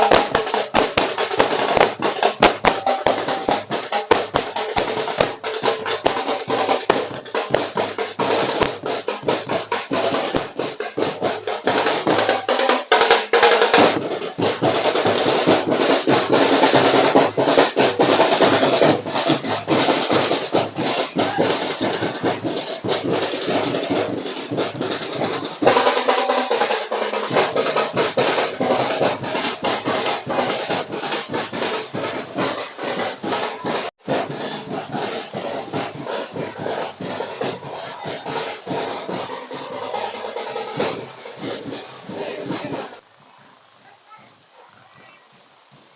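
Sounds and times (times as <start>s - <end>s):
percussion band playing: 0.0s - 43.0s.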